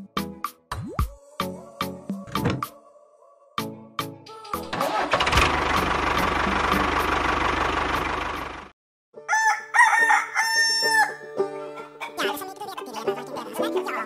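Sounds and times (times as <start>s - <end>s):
rooster crowing: 9.2s - 11.2s
light background music: 9.2s - 14.0s.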